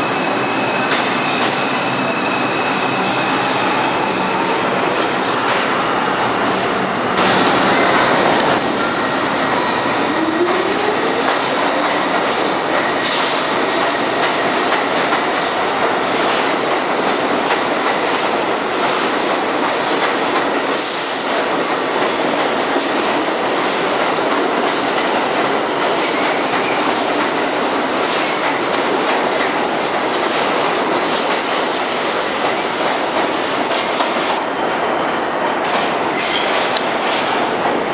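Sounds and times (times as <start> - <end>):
high squeal: 0.0 - 5.1.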